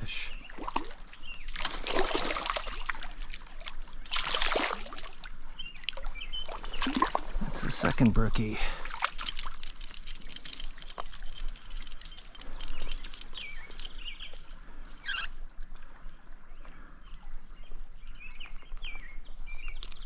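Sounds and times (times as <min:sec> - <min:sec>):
small birds chirping: 0:05.6 - 0:15.3.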